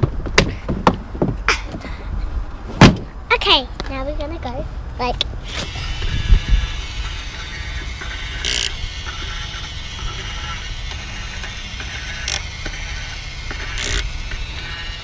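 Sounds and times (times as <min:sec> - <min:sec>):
low steady rumble: 0:00.0 - 0:15.0
spray bottle hissing: 0:05.5 - 0:15.0.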